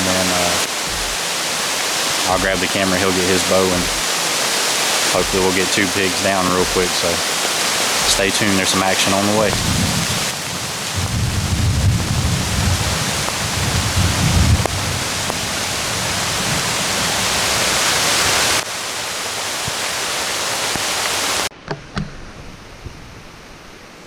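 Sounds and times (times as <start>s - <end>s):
heavy rain hissing: 0.0s - 21.5s
wind rumble on microphone: 9.5s - 18.6s.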